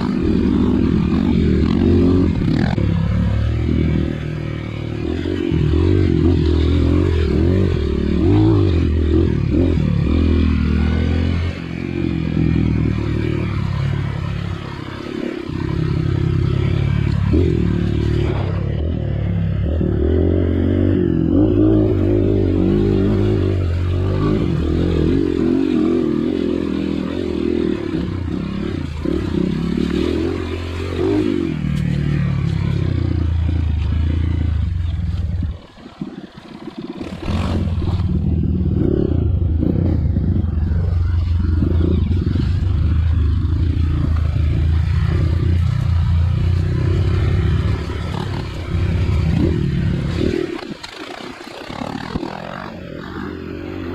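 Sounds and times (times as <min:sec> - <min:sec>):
motorcycle engine revving: 0:00.0 - 0:53.9
motorcycle clatter on rough ground: 0:42.0 - 0:52.7.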